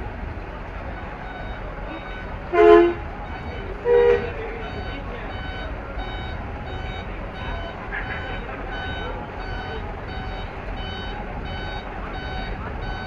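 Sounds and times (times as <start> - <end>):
crowd hubbub: 0.0 - 13.0
truck horn blasts: 0.0 - 13.0
repeating electronic beep: 4.6 - 13.0.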